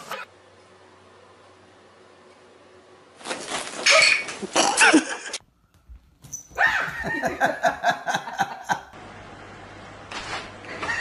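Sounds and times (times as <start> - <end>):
high pitched yelps: 6.5 - 7.1.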